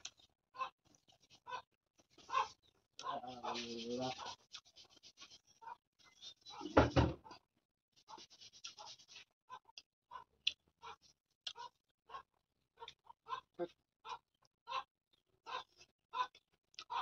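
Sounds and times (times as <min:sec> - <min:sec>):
thump: 0:06.7 - 0:07.2
chewing and mouth smacks: 0:09.7 - 0:11.8.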